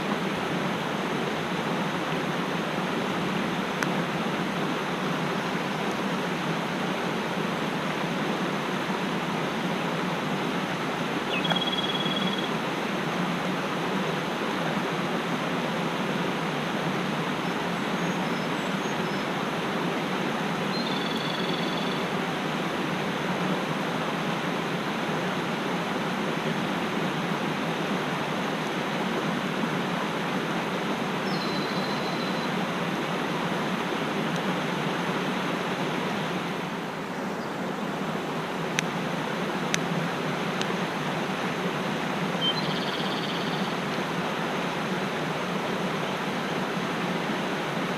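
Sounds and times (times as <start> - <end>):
mountain stream rushing: 0.0 - 47.9
high bird calls: 11.3 - 12.5, 20.7 - 22.0, 42.4 - 43.8.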